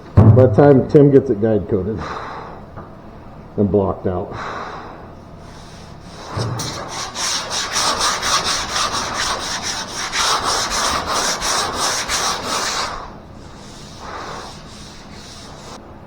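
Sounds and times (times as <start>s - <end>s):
hand sanding scratching: 5.6s - 15.8s.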